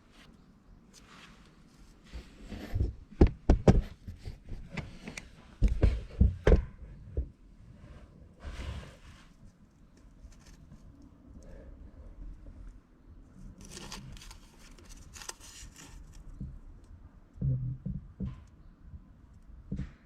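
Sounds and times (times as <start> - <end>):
rustling scrape: 0.0 - 2.8, 7.8 - 9.6, 13.4 - 16.3
sharp knocks and clunks: 2.7 - 4.8, 5.6 - 7.4, 17.4 - 18.5, 19.6 - 20.0.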